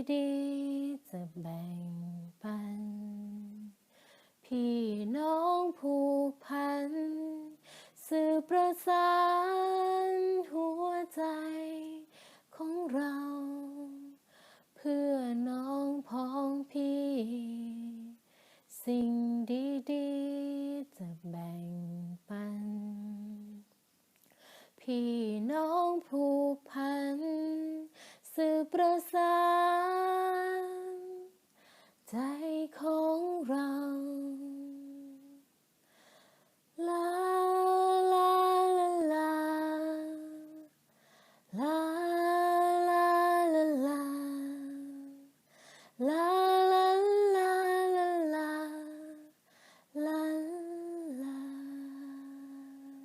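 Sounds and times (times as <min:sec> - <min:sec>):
woman singing unaccompanied: 0:00.0 - 0:03.8, 0:04.4 - 0:23.7, 0:24.8 - 0:35.6, 0:36.7 - 0:40.8, 0:41.4 - 0:53.0
singer breathing: 0:03.9 - 0:04.4, 0:07.6 - 0:08.0, 0:12.1 - 0:12.5, 0:14.2 - 0:14.7, 0:24.3 - 0:24.8, 0:27.9 - 0:28.2, 0:31.5 - 0:32.0, 0:35.8 - 0:36.6, 0:40.8 - 0:41.5, 0:45.4 - 0:46.0, 0:49.4 - 0:49.9.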